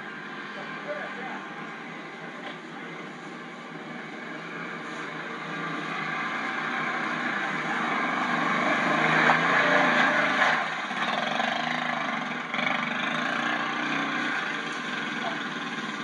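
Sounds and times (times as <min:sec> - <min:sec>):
atv engine revving: 0:03.8 - 0:16.0.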